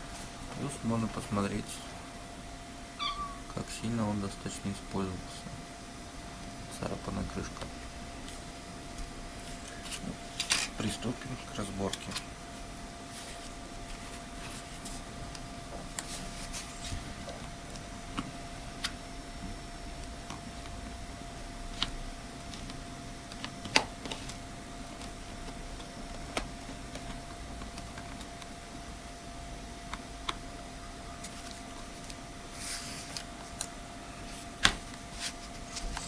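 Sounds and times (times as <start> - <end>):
faint hum: 0.0 - 36.0.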